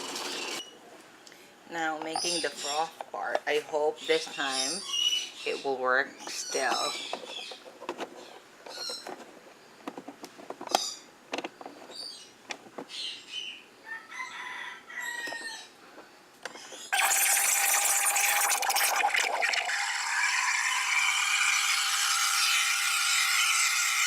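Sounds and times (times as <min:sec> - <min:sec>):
rooster crowing: 0:13.8 - 0:15.8.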